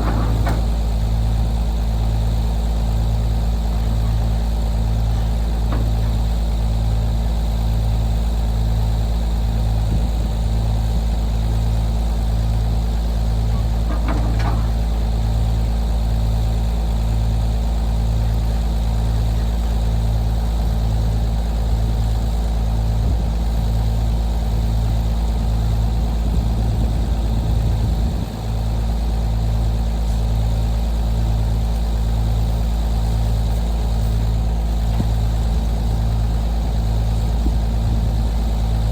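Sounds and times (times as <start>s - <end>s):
short rattle: 0.0s - 2.2s, 3.7s - 7.1s, 13.4s - 15.7s
vehicle engine droning: 0.0s - 38.9s.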